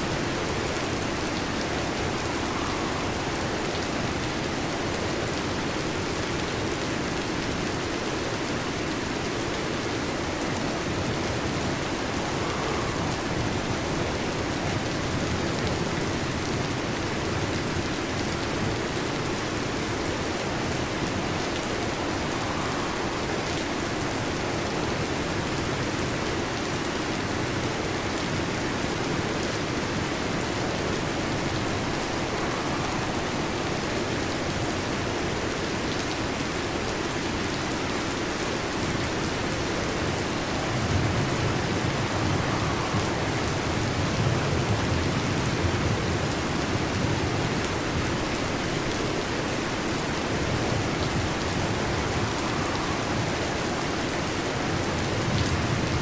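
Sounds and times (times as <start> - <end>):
heavy rain on a metal roof: 0.0 - 56.0
thunder rumble: 39.8 - 48.2.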